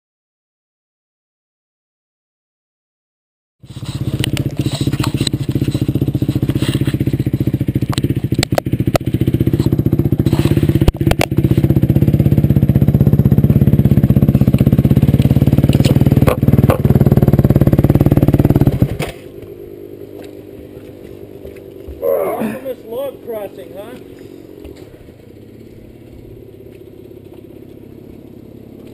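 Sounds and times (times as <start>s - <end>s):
motorcycle engine running: 3.6s - 28.9s
sharp clicks and knocks: 7.8s - 9.7s.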